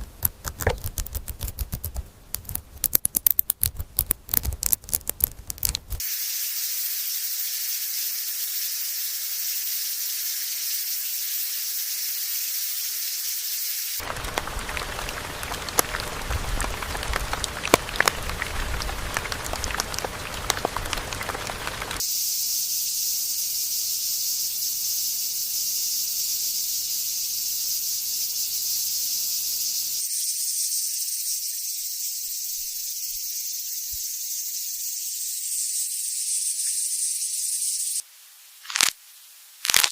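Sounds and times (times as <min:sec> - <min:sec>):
deep noise with crackles: 0:00.0 - 0:06.0, 0:14.0 - 0:22.0
steady high hiss: 0:06.0 - 0:39.9.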